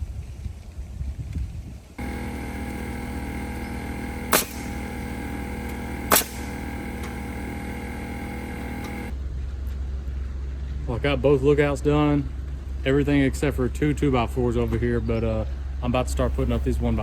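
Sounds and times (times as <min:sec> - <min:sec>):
motor humming: 0:02.0 - 0:09.1
nail gun shots: 0:02.4 - 0:07.3.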